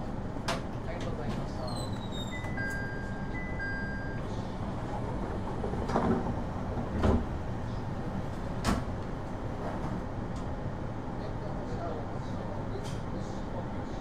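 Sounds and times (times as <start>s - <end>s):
stopped train low hum: 0.0s - 14.0s
electronic two-tone chime: 2.4s - 4.2s.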